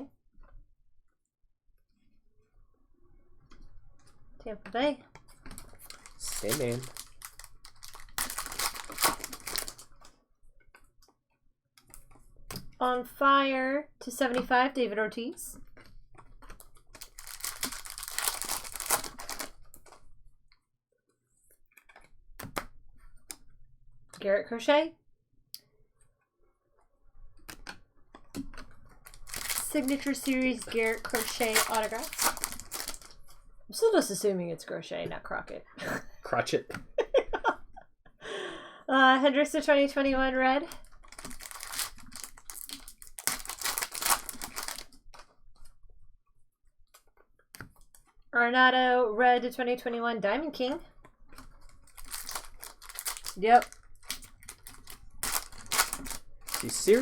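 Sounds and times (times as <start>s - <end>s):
foil wrapper tearing and crinkling: 5.6s - 10.1s, 16.9s - 20.0s, 29.0s - 33.3s, 40.8s - 45.3s, 51.4s - 57.0s.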